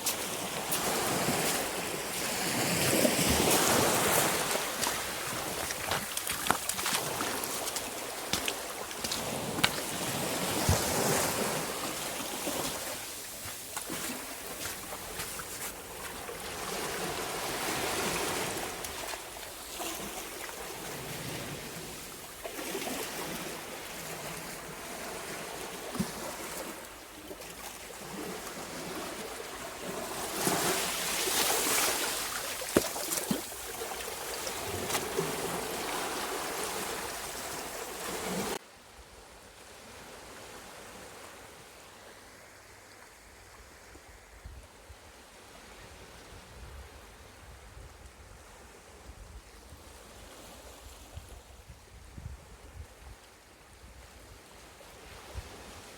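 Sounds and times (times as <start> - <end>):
sea waves washing on shore: 0.0 - 38.6.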